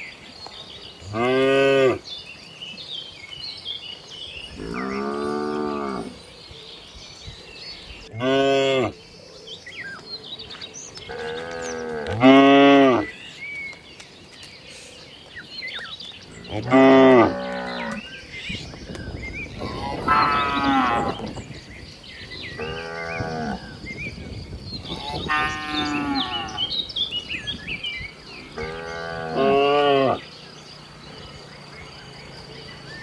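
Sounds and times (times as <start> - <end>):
cows mooing: 4.5 - 6.2, 8.1 - 9.0, 11.1 - 13.1, 16.4 - 18.0, 19.6 - 21.3, 22.6 - 23.6, 24.8 - 26.7, 28.5 - 30.3.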